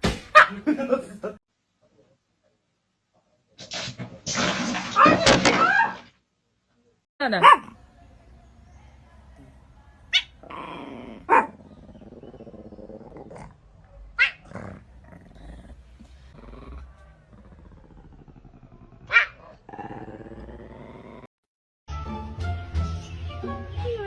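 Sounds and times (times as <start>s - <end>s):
dog barking: 0.3s - 0.6s, 7.4s - 7.8s, 11.3s - 11.6s, 13.8s - 14.5s, 19.1s - 19.6s
dog growling: 10.4s - 13.7s, 14.3s - 21.3s.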